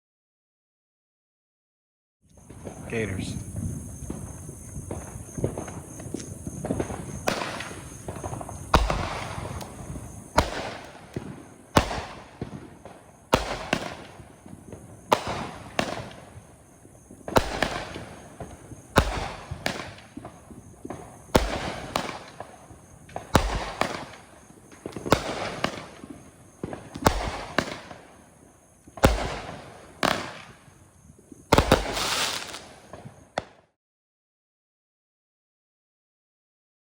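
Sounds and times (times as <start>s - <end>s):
firework shots: 2.4s - 30.8s, 31.4s - 33.7s.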